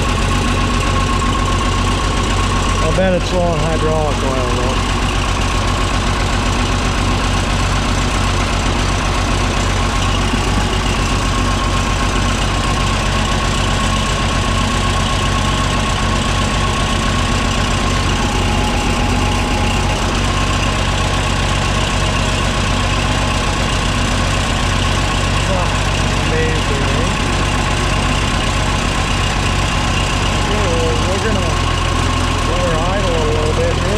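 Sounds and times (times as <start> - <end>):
tractor diesel engine idling: 0.0 - 33.9.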